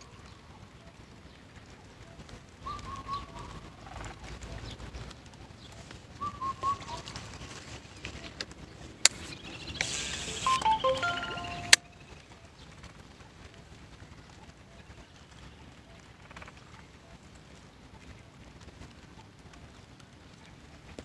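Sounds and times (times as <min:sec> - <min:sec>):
bird calling: 0:02.6 - 0:03.7, 0:06.2 - 0:07.3.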